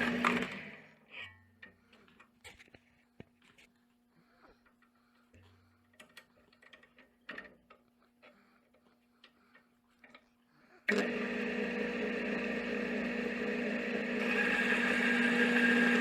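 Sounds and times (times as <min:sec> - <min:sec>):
loud steady machine noise: 0:00.0 - 0:00.5, 0:10.9 - 0:16.0.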